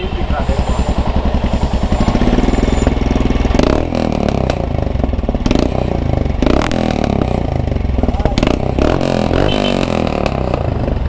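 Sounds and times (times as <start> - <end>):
motorcycle engine with throttle blips: 0.0 - 11.0.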